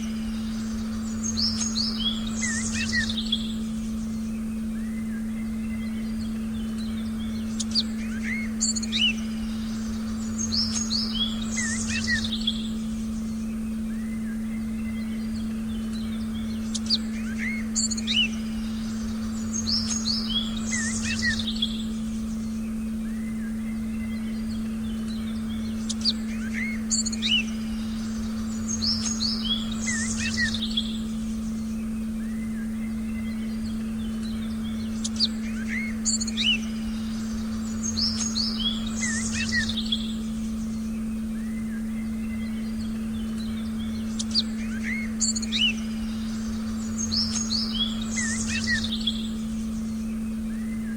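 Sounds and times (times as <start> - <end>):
birds chirping and whistling: 0.0 - 50.9
faint low rumble: 0.0 - 50.9.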